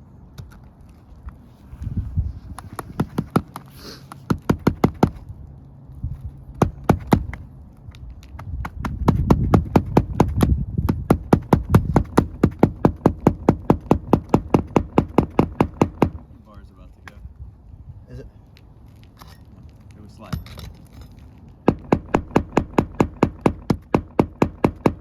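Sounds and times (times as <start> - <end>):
hammer tapping nails into shingles: 2.6 - 5.3, 6.5 - 16.3, 20.2 - 25.0.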